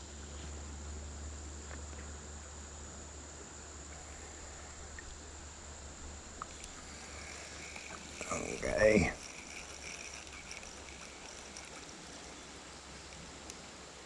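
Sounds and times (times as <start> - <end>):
high-pitched hum: 3.9 - 13.2
faint ticks: 3.9 - 13.7.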